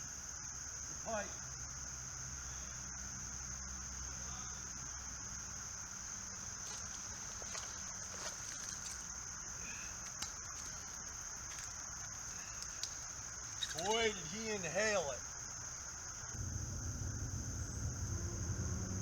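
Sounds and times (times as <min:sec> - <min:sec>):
insects buzzing: 0:00.0 - 0:19.0
faint clicks: 0:06.5 - 0:14.1.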